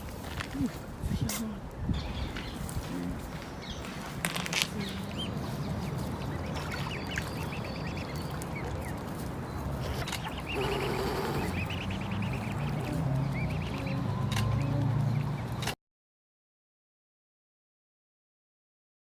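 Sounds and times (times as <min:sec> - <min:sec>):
birds chirping: 0:01.1 - 0:15.7.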